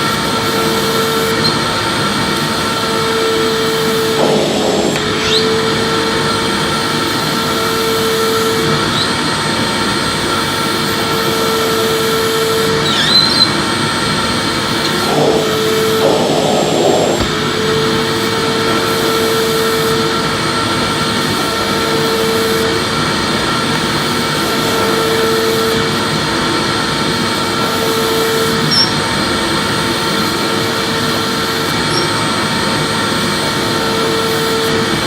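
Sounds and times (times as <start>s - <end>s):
vacuum cleaner running: 0.0s - 35.0s
faint short squeaks: 5.2s - 5.6s, 12.8s - 13.6s, 28.7s - 29.0s, 31.9s - 32.2s.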